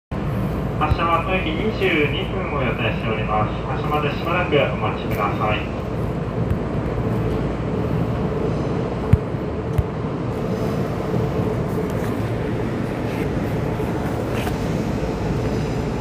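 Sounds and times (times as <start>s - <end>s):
train cabin hum and rumble: 0.1s - 16.0s.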